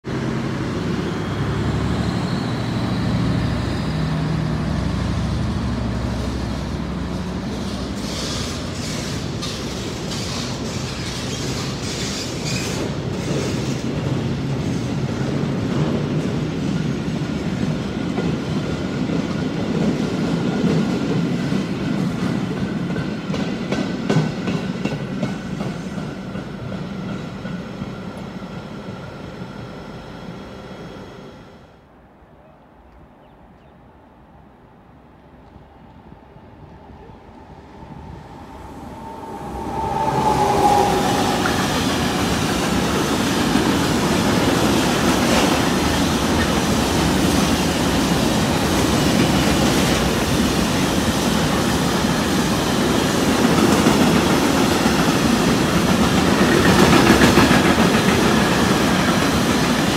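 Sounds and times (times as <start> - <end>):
locomotive engine humming: 36.4 - 52.7.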